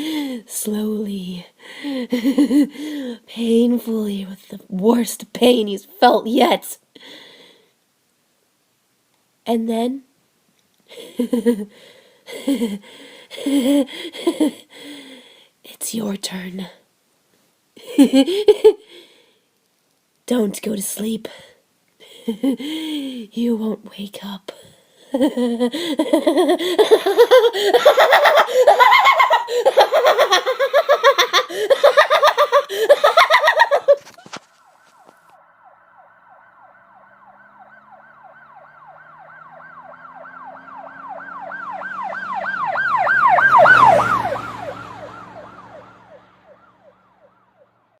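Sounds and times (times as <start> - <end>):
person laughing maniacally: 1.7 - 3.1, 10.9 - 15.0, 17.8 - 19.0, 22.0 - 23.2, 25.0 - 34.3
emergency vehicle siren wailing: 34.4 - 48.0
low vehicle rumble: 34.6 - 48.0.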